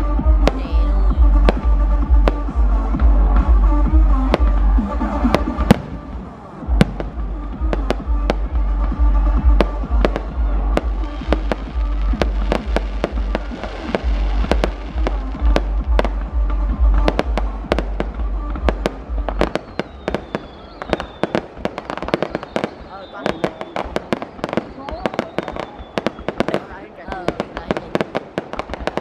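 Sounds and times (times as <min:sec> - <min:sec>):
loud music with pulsing bass: 0:00.0 - 0:22.2
fireworks bangs and cracks: 0:00.0 - 0:29.0.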